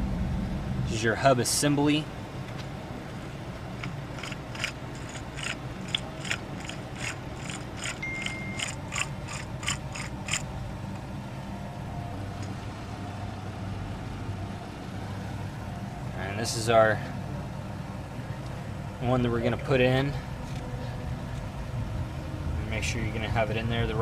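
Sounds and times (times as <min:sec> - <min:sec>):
ratchet wrench clicking: 0:03.8 - 0:10.5.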